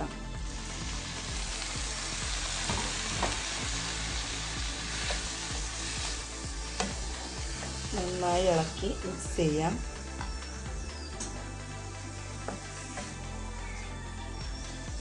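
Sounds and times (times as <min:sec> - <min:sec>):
meat sizzling in a frying pan: 0:00.4 - 0:10.3.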